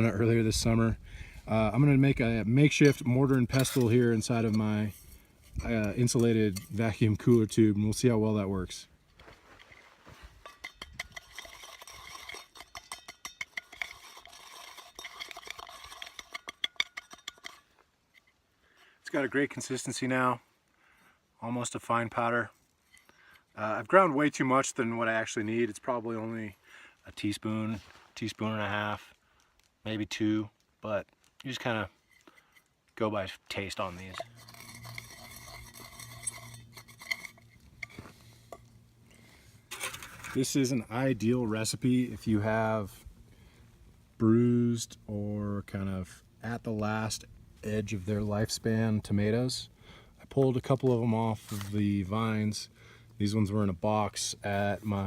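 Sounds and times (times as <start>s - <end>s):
scraping in metal tumbler: 9.6s - 18.3s, 33.8s - 38.7s, 39.7s - 40.8s
small metal clinks: 10.4s - 18.4s
rock grinding seeds in metal tube: 10.5s - 17.8s, 33.2s - 38.7s, 39.7s - 41.0s.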